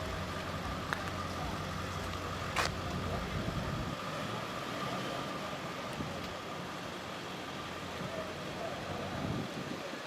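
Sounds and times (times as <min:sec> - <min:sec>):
engine idling low rumble: 0:00.0 - 0:10.0.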